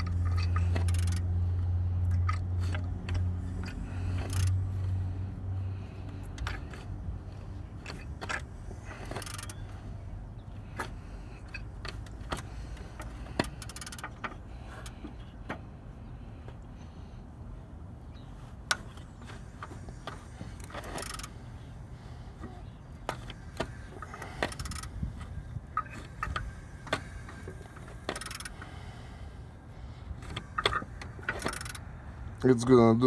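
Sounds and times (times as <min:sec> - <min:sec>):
metallic clicks and clinks: 0:00.0 - 0:05.0
low steady hum: 0:00.0 - 0:33.0.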